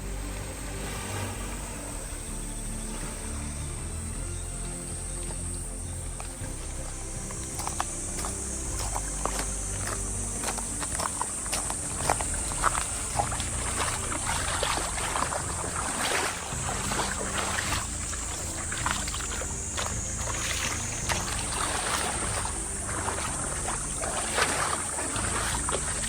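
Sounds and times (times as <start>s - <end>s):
water splashing and lapping: 0.0s - 26.0s
wind and surf rumble: 5.6s - 26.0s.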